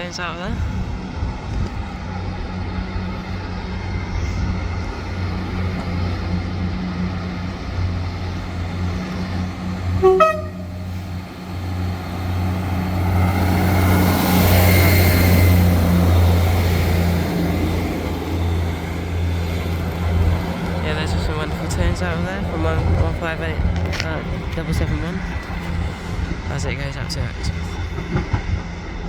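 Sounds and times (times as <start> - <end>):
diesel train engine hum: 0.0 - 29.0
train horn toot: 10.0 - 11.0.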